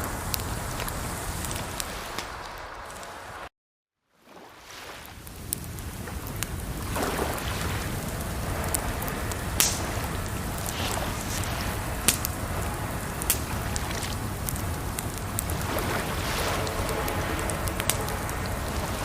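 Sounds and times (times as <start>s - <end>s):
campfire crackling and popping: 0.0s - 3.3s, 5.1s - 19.0s
rushing water: 4.2s - 19.0s.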